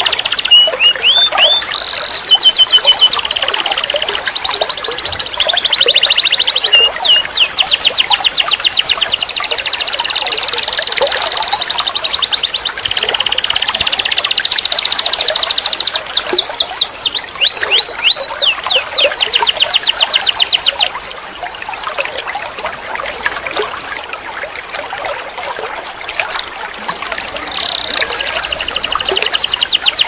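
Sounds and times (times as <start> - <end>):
canary singing trills: 0.0 - 20.9, 27.4 - 30.0
faint bird chirps: 0.0 - 20.9, 27.4 - 30.0.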